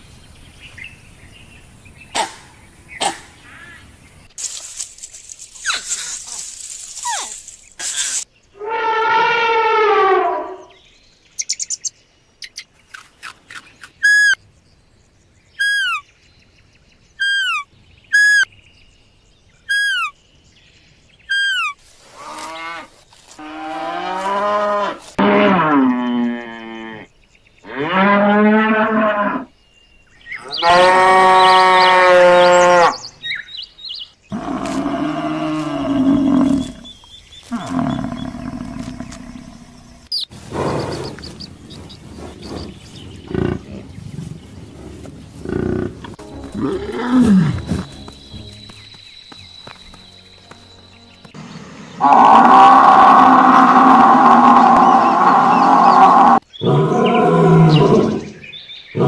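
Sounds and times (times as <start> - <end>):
animal calls: 15.6 - 16.0, 17.2 - 18.5, 19.7 - 20.1, 21.3 - 22.9.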